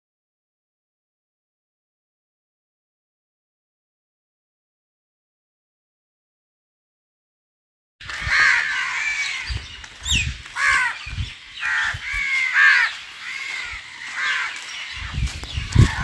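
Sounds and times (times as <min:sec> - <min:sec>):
harsh bird calls: 0:08.0 - 0:16.0.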